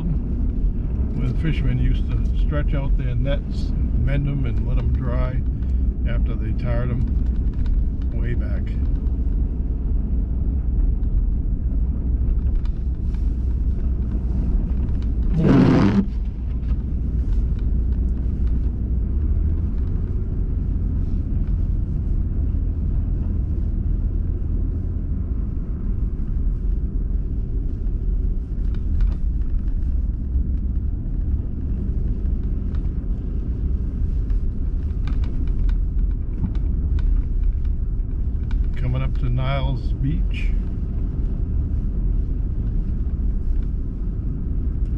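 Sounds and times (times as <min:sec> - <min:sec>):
car cabin rumble: 0:00.0 - 0:44.9
rush of noise: 0:13.6 - 0:16.8.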